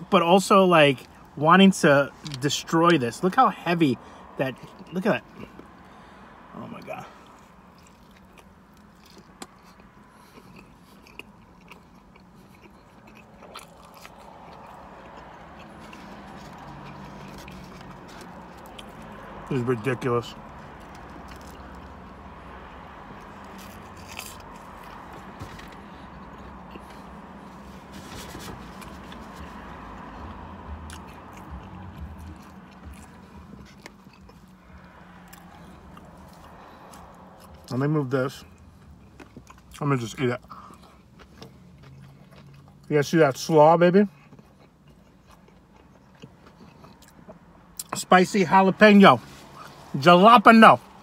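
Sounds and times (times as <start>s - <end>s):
person chewing crunchy food: 6.9s - 19.3s, 20.4s - 37.7s, 38.5s - 42.9s, 44.0s - 48.0s.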